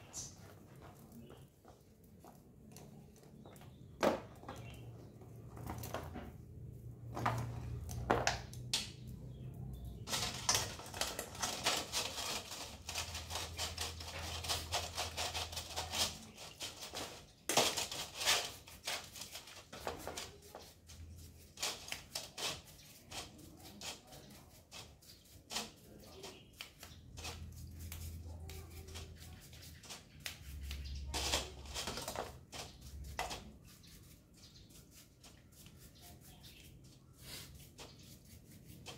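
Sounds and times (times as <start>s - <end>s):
clicking and knocking on bicycle parts: 7.0s - 9.3s.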